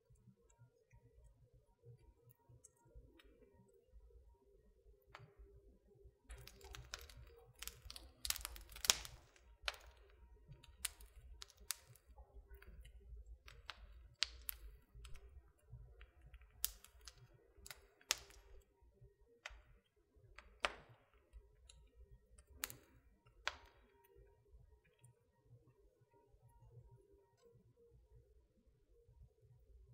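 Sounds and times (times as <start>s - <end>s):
wood fire crackling: 6.3s - 24.8s.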